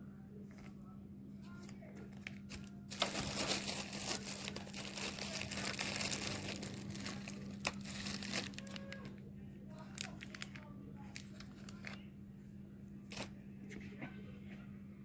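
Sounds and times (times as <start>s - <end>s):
dry crinkling and rustling: 1.4s - 12.1s, 13.1s - 13.9s.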